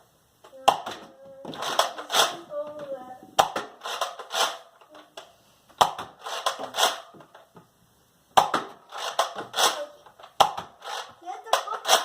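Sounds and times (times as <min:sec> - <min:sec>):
toy blaster shots: 0:01.6 - 0:02.5, 0:03.4 - 0:04.7, 0:05.8 - 0:07.1, 0:08.4 - 0:12.0.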